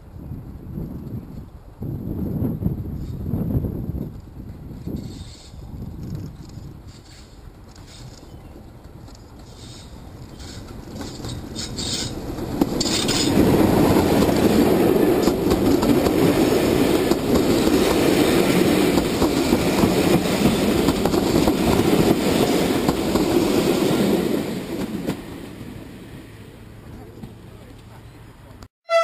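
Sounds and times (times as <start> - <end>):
diesel locomotive engine: 1.5 - 29.0
wheels clattering over rail joints: 4.9 - 25.7.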